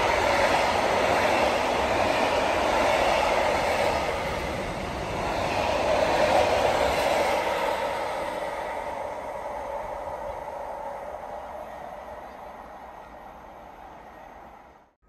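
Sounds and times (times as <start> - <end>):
freight train wheels on track: 0.0 - 15.0.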